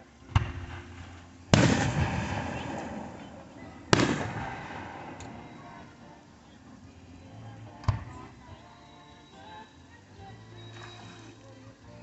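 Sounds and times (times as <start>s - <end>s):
fireworks booming: 0.3s - 6.1s.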